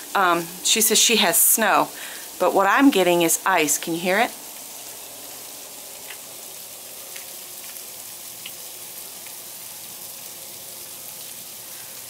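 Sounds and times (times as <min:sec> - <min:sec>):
ice pellets ticking: 0:04.6 - 0:11.9.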